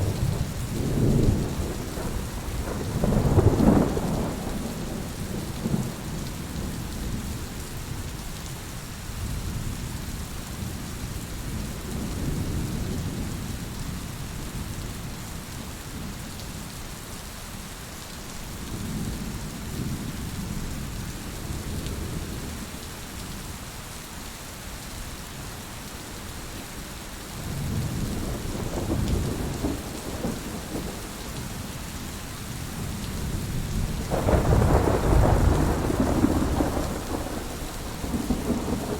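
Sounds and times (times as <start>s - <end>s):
low rolling thunder: 0.0s - 8.1s, 27.4s - 38.9s
heavy rain hissing: 0.0s - 15.3s, 20.9s - 38.9s.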